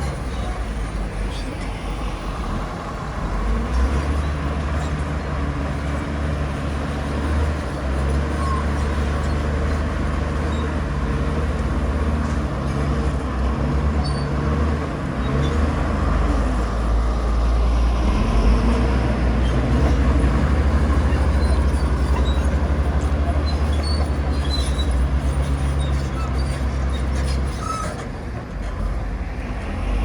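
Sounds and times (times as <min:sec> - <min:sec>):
heavy diesel engine under load: 0:00.0 - 0:30.0.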